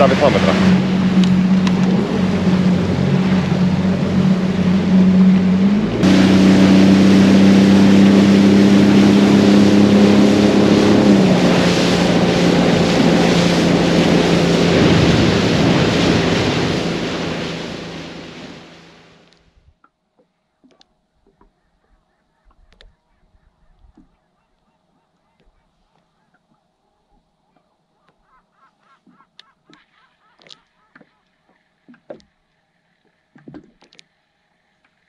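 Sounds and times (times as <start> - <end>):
wind noise: 0.0 - 18.8
water rushing past hull: 0.0 - 19.3
motorboat engine running: 0.0 - 19.8, 29.1 - 35.0.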